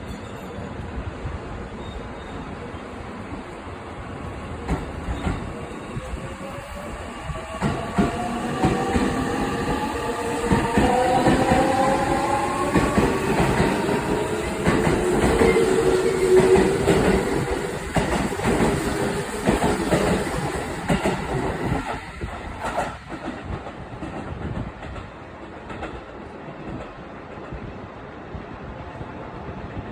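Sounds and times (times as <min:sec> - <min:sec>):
train wheels clacking on rail joints: 0:04.6 - 0:06.1, 0:07.4 - 0:27.6.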